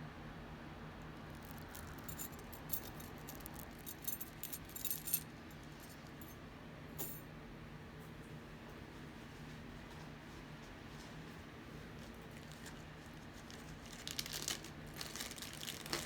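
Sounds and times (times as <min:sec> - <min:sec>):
metal jewelry clinking: 0:01.2 - 0:06.4, 0:07.0 - 0:07.2.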